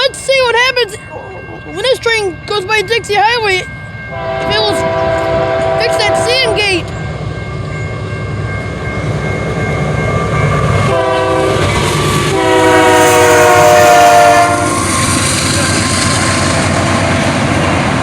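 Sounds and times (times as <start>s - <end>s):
train wheels rumbling on rails: 0.0s - 18.0s
train horn blasts: 4.1s - 6.8s, 10.9s - 15.2s.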